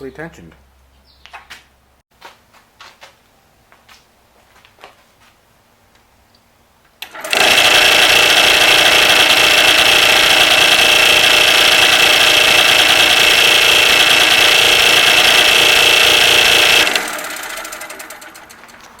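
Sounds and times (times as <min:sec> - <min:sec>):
scroll saw running: 0:07.0 - 0:18.9
scroll saw winding down: 0:07.0 - 0:19.0.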